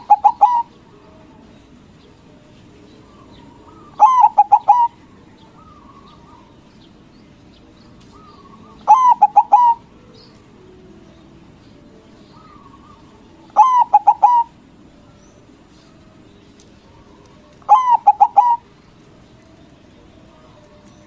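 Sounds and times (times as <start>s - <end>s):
dove cooing: 0.0s - 1.4s, 3.0s - 6.6s, 8.1s - 10.0s, 12.3s - 14.9s, 16.8s - 19.0s.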